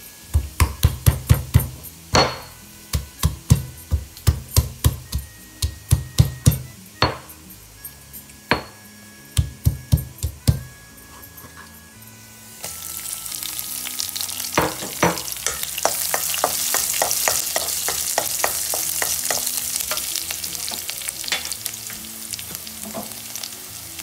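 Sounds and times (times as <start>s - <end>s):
garlic sizzling in hot oil: 0.0s - 24.0s
spatula scraping a pan: 11.0s - 11.9s.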